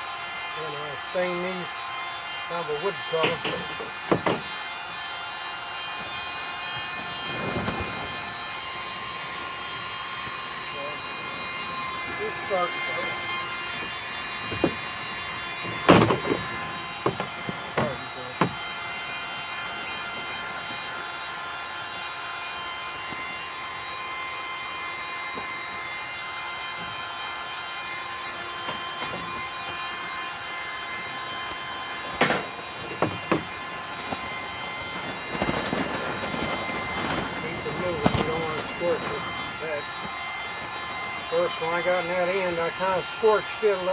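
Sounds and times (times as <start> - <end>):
heat gun fan whine: 0.0 - 43.9
plastic knocks: 4.1 - 4.4.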